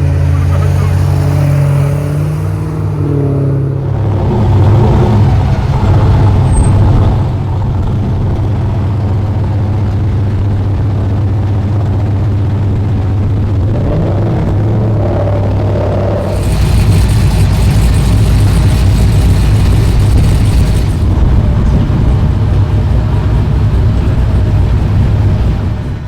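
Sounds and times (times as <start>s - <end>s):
car engines rumbling: 0.0s - 26.0s.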